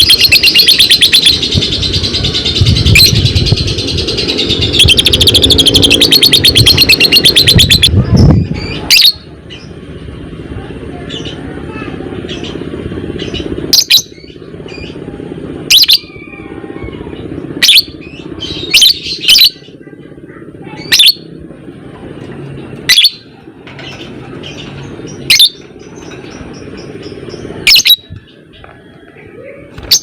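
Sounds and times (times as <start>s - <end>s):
lovebird shrill calls: 4.2s - 7.9s.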